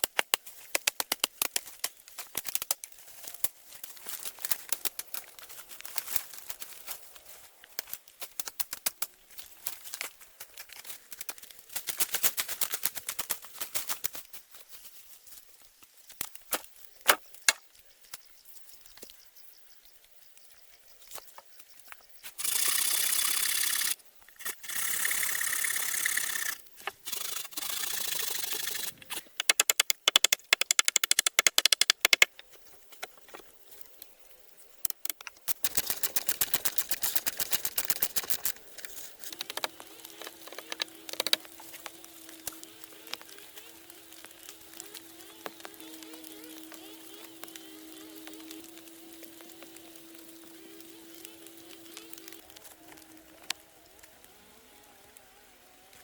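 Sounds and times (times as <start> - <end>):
rapid sharp tool strokes: 22.4 - 32.3, 34.9 - 49.8
sharp knocks and clicks on wood: 29.4 - 33.4, 39.2 - 41.9
rasping and scraping wood: 34.9 - 49.7.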